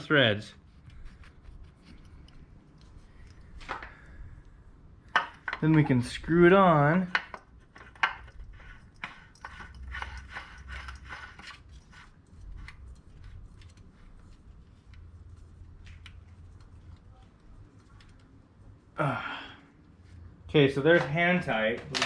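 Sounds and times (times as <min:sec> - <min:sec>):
oil filter scraping on thread: 0:07.2 - 0:18.3.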